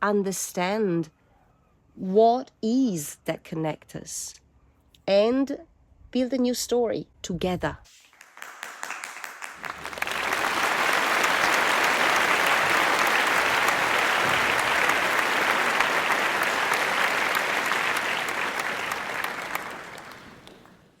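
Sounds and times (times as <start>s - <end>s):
audience applauding: 8.1s - 21.0s.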